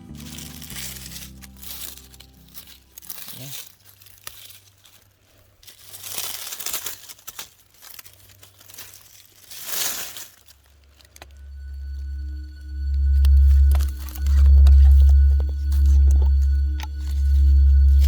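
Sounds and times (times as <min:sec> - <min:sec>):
music: 0:00.0 - 0:03.6, 0:11.2 - 0:18.0
rustling crinkling noise: 0:00.0 - 0:18.0.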